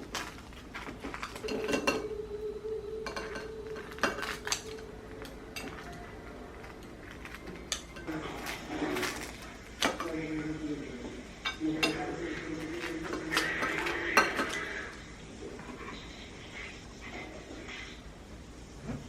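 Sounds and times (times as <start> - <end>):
dishes and cutlery clinking: 0.0 - 2.2, 3.0 - 10.6, 11.3 - 15.0
steady low tone: 1.9 - 7.0.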